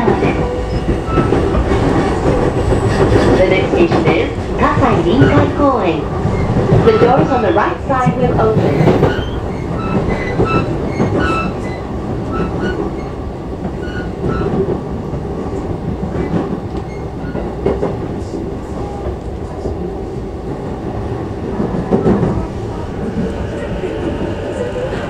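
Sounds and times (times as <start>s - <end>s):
train wheels rumbling on rail: 0.0s - 25.0s
clacks over rail joints: 0.1s - 14.8s.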